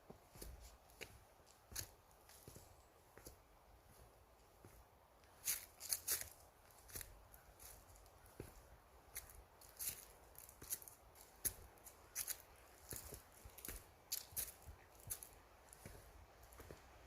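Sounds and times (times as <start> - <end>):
footsteps crunching on trail: 0.0 - 17.0.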